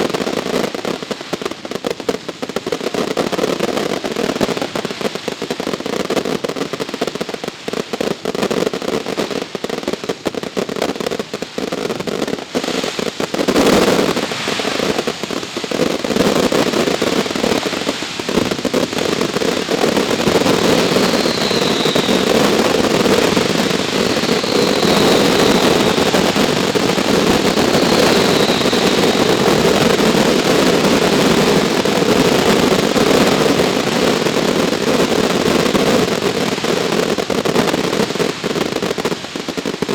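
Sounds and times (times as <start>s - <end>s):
fireworks bursting and crackling: 0.0s - 39.9s
faint falling whistles: 20.5s - 30.0s.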